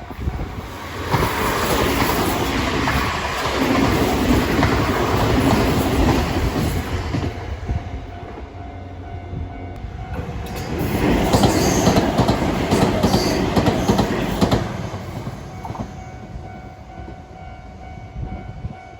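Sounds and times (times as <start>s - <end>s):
train wheels clicking over rail joints: 0.5s - 7.4s, 10.1s - 16.0s.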